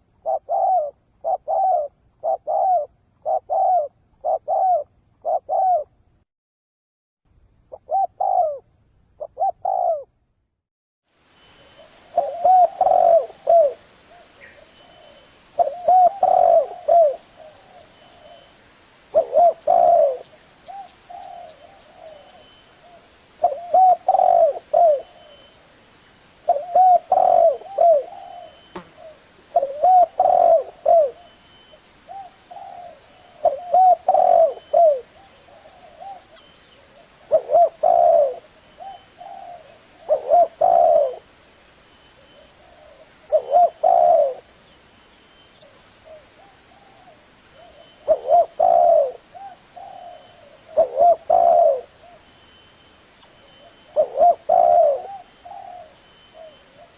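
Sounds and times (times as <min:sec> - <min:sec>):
dove cooing: 0:00.0 - 0:05.9, 0:07.7 - 0:10.1, 0:11.8 - 0:18.5, 0:19.1 - 0:25.5, 0:26.4 - 0:41.3, 0:42.2 - 0:44.5, 0:45.6 - 0:52.2, 0:53.6 - 0:56.9.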